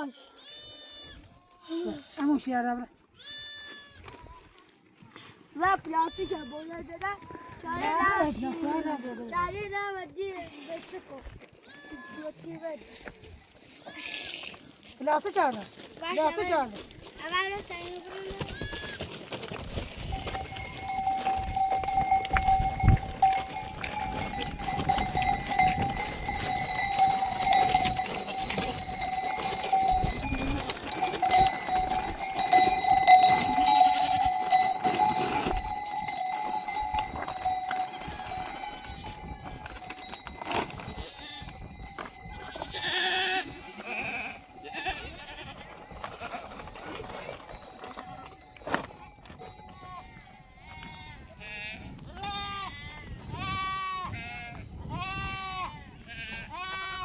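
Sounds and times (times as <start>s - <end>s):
knocks and shuffling: 14.9s - 42.8s, 45.6s - 49.8s
animal bells ringing: 15.3s - 55.5s, 56.2s - 57.0s.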